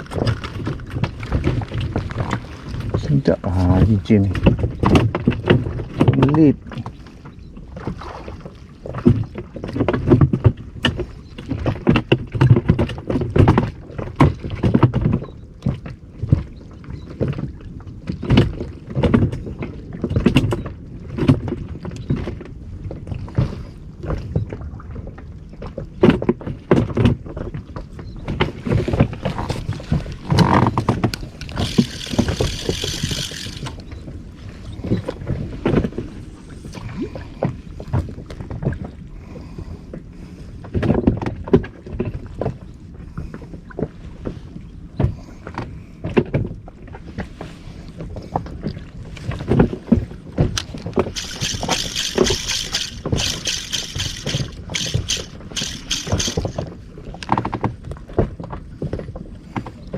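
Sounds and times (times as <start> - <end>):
water slapping against boat hull: 25.6 - 32.6.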